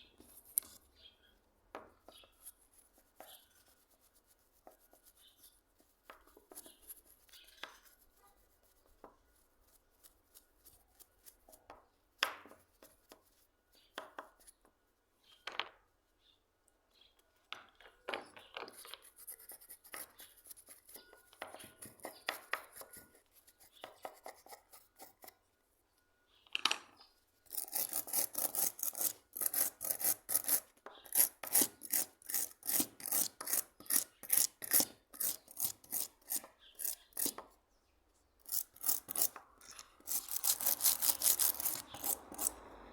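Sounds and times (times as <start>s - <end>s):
metal rubbing abrasive strokes: 38.4s - 42.6s.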